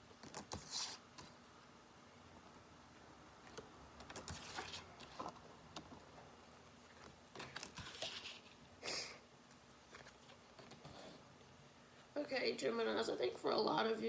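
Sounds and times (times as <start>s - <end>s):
cards being shuffled: 0.2s - 1.3s, 3.5s - 5.4s, 6.9s - 8.6s.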